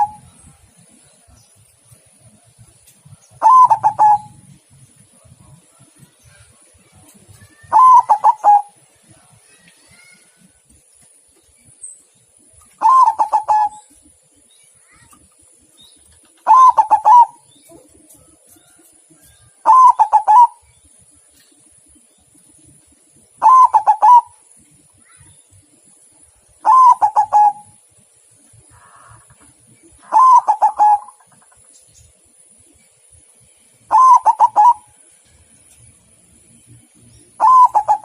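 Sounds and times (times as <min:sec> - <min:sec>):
dove cooing: 0:00.0 - 0:00.3, 0:03.4 - 0:04.4, 0:07.6 - 0:08.8, 0:12.8 - 0:14.0, 0:16.4 - 0:18.1, 0:19.6 - 0:20.6, 0:23.4 - 0:24.4, 0:26.6 - 0:27.8, 0:30.0 - 0:31.4, 0:33.9 - 0:34.9, 0:37.3 - 0:38.0.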